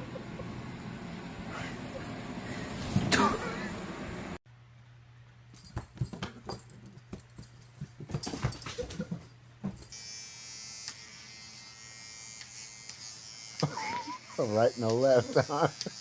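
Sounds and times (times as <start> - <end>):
steady electric buzz: 9.9 - 16.0.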